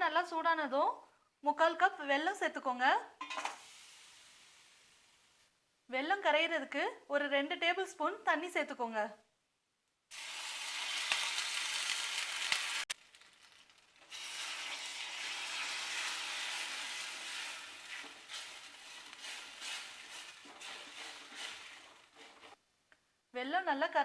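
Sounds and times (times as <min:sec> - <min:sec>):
sizzling in a hot pan: 0:03.3 - 0:05.3, 0:10.1 - 0:22.6.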